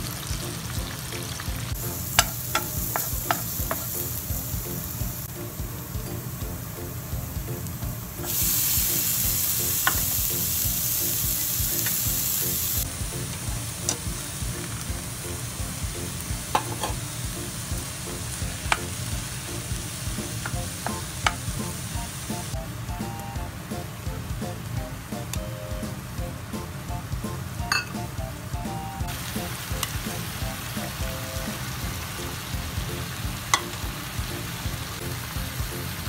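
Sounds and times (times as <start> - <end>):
garlic and onion sizzling in oil: 0.0 - 36.0
loud hiss of onion in hot pan: 1.7 - 5.5, 8.0 - 22.6.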